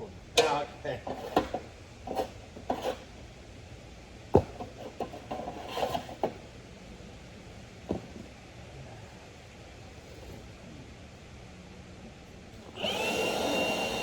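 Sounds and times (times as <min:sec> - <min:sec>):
objects scraping and rubbing: 0:01.0 - 0:03.1, 0:04.7 - 0:06.4.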